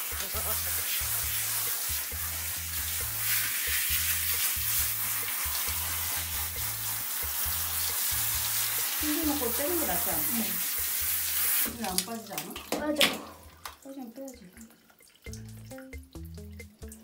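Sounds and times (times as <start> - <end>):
shower head spraying water: 0.0 - 13.4
music bass line: 15.3 - 17.0.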